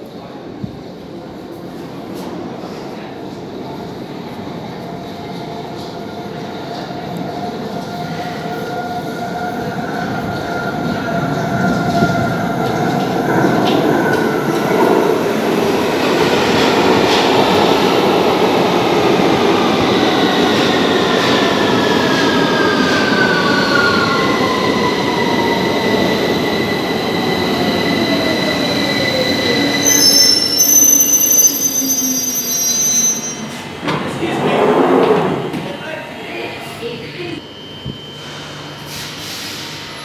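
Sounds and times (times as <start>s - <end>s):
brake and wheel squeal: 28.6s - 33.6s.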